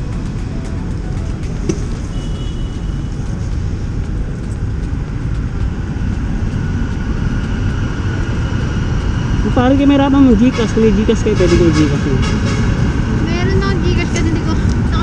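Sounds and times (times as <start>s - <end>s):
motorcycle engine: 0.0s - 15.0s
traffic: 0.0s - 15.0s.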